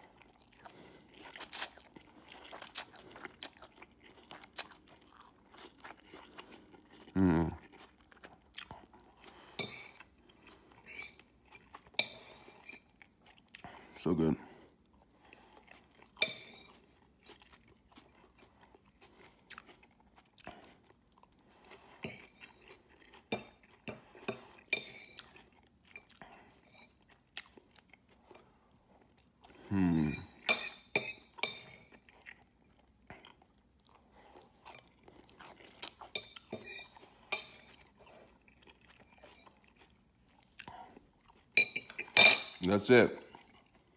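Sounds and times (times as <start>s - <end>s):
chewing and mouth sounds: 0.0s - 42.6s, 43.2s - 43.9s
metal fork on ceramic plate: 36.1s - 37.7s, 41.6s - 42.6s.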